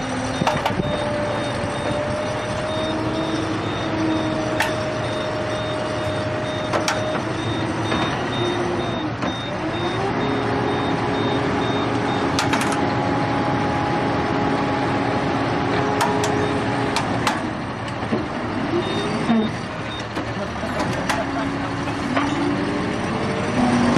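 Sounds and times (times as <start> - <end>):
heavy vehicle engine revving: 0.0 - 23.9
sharp knocks or clanks: 12.4 - 12.9, 16.0 - 17.5.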